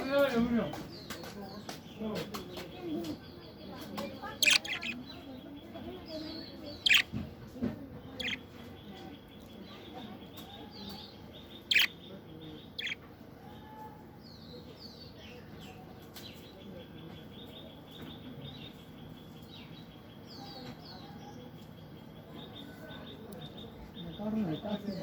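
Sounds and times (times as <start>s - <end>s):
faint high twittering: 3.1s - 7.2s, 8.0s - 15.8s
loud sharp bird chirps: 4.2s - 5.3s, 6.7s - 7.2s, 8.2s - 8.5s, 10.9s - 13.0s.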